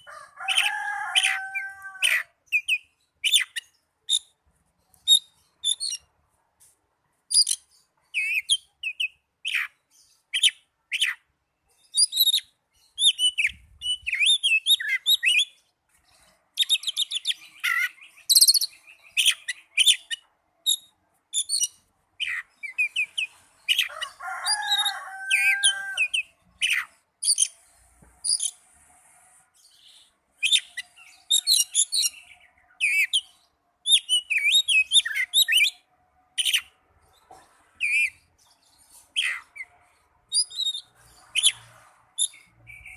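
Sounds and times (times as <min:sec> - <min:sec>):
bird singing whistles and chirps: 0:30.4 - 0:35.8.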